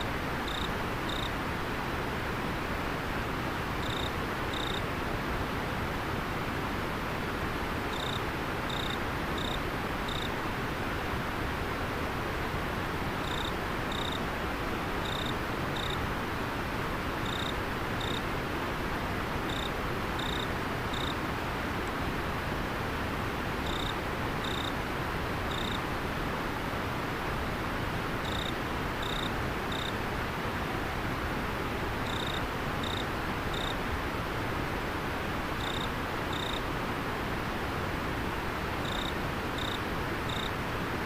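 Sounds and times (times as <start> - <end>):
insect chirping: 0.4 - 1.3, 3.8 - 4.8, 7.9 - 10.3, 13.2 - 14.2, 15.0 - 16.0, 17.2 - 18.2, 19.5 - 21.2, 23.6 - 24.7, 25.5 - 25.8, 28.2 - 29.9, 32.0 - 33.8, 35.6 - 36.6, 38.8 - 40.5.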